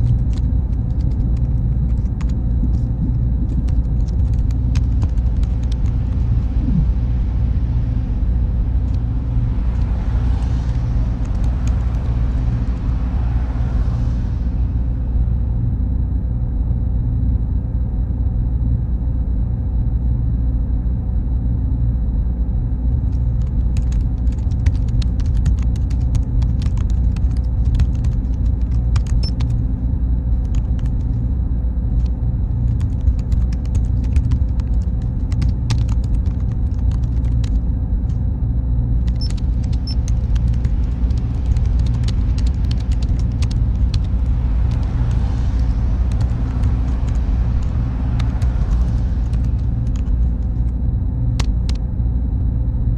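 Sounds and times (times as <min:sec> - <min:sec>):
deep machine hum: 0:00.0 - 0:52.9
faint high whine: 0:00.0 - 0:52.9.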